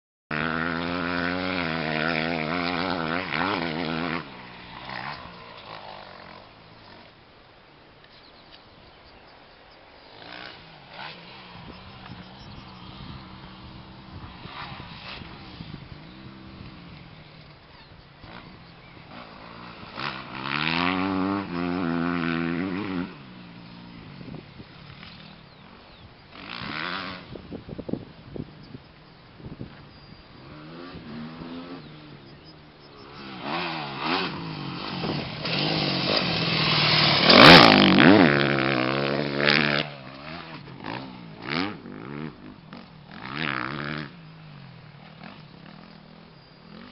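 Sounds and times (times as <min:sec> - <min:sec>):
motorcycle engine running: 0:10.0 - 0:46.9.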